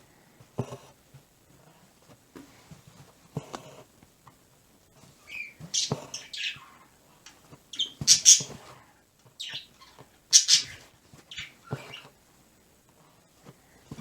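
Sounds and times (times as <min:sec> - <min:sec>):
pet birds squawking and chirping: 0:05.2 - 0:08.6, 0:09.4 - 0:12.1.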